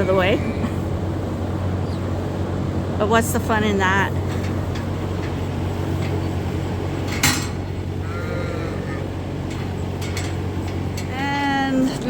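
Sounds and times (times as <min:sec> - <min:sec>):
steady low hum: 0:00.0 - 0:12.0
sheep bleating: 0:08.0 - 0:09.2.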